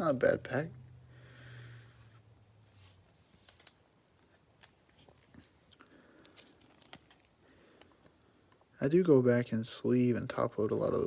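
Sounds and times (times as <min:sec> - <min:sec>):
trading cards and wrappers rustling: 0:02.7 - 0:08.8.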